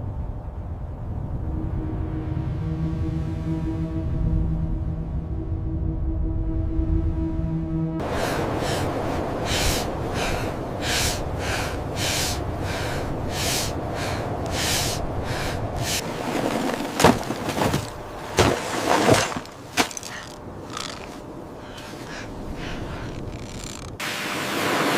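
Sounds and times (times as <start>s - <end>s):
wind rushing: 0.0s - 7.4s, 8.0s - 19.8s
footsteps crunching through snow: 15.8s - 21.2s.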